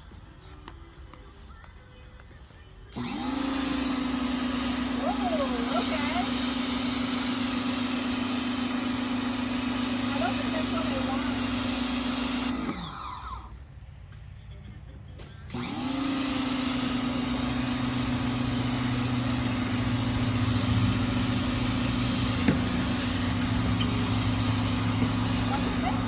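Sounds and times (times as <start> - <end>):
pressure washer motor humming: 2.9 - 13.5, 15.5 - 26.0
water jet hissing: 3.0 - 12.8, 16.0 - 26.0.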